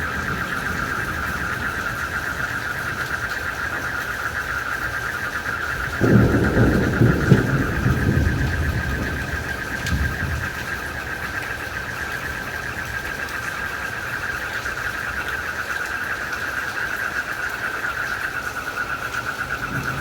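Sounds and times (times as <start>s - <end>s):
crickets trilling: 0.0s - 20.0s
faint rain hiss: 0.0s - 20.0s.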